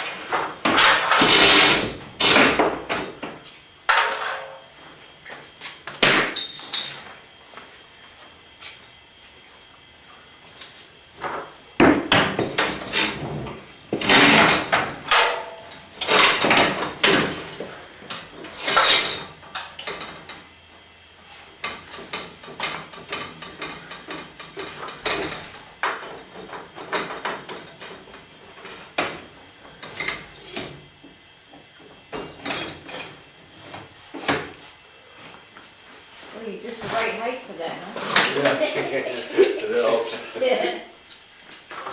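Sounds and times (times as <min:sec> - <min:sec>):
tools and metal hardware clattering: 0:00.6 - 0:03.1, 0:03.9 - 0:04.6, 0:06.0 - 0:07.0, 0:14.0 - 0:17.5, 0:21.7 - 0:28.3, 0:32.1 - 0:33.2, 0:37.9 - 0:40.2.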